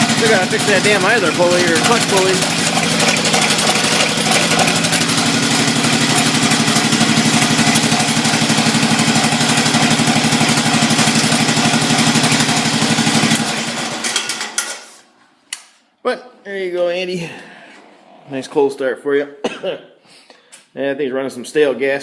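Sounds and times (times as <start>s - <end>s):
garden tractor engine running: 0.0s - 14.8s.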